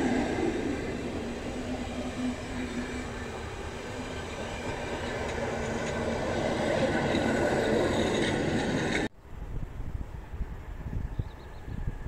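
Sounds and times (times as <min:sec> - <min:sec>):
train wheels rumbling on rails: 0:00.0 - 0:09.1.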